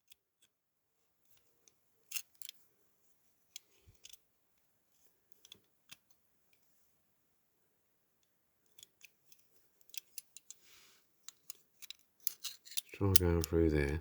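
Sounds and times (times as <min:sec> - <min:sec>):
small metal parts clicking: 0:02.1 - 0:02.6, 0:08.7 - 0:10.6, 0:11.3 - 0:13.5.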